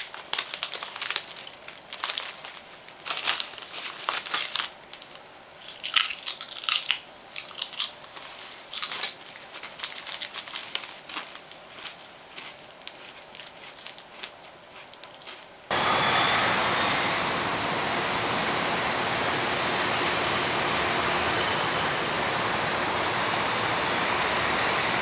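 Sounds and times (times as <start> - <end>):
crinkling and crunching clicks: 0.0 - 15.6
loud steady rushing noise: 15.7 - 25.0.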